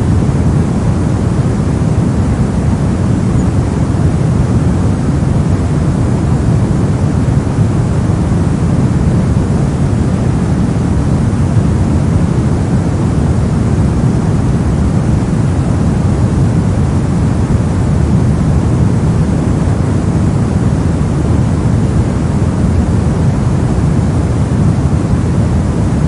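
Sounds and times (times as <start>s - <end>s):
deep muffled steady noise: 0.0s - 26.0s.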